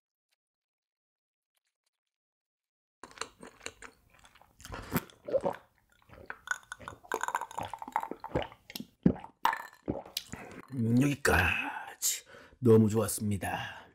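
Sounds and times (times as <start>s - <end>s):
person chewing and biting food: 3.0s - 10.6s.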